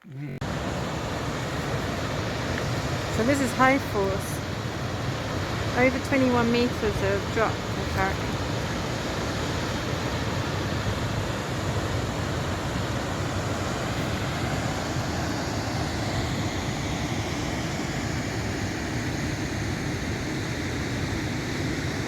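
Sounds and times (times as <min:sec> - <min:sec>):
waterfall rushing: 0:00.4 - 0:22.0.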